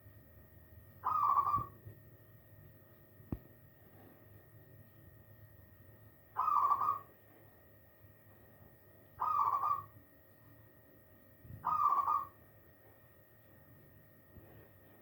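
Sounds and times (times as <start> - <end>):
dove cooing: 1.0 - 1.8, 6.4 - 7.1, 9.2 - 9.9, 11.5 - 12.4.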